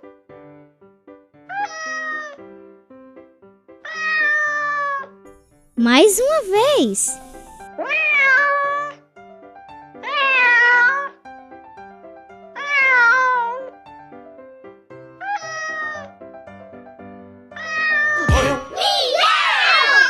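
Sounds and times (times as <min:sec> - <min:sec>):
light background music: 0:00.0 - 0:20.0
cat meowing: 0:01.5 - 0:02.4, 0:12.6 - 0:13.6, 0:15.2 - 0:16.1, 0:17.6 - 0:18.2.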